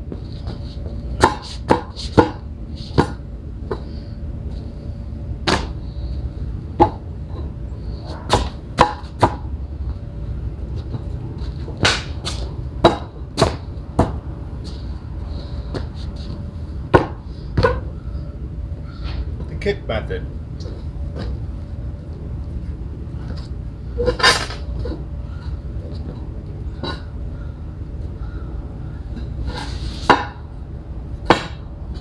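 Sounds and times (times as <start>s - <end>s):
sharp knocks on patio pavers: 1.2s - 3.9s, 5.4s - 5.8s, 8.2s - 9.5s, 11.6s - 14.2s, 31.2s - 32.0s.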